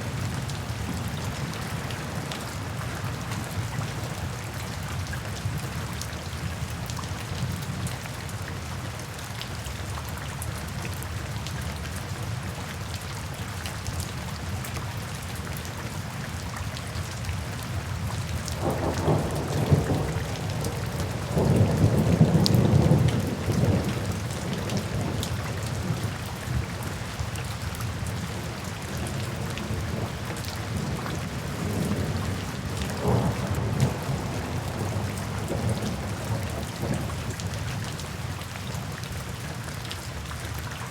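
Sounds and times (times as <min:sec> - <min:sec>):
steady rain falling: 0:00.0 - 0:40.9
thunder rumbling: 0:18.6 - 0:26.9, 0:28.4 - 0:37.6.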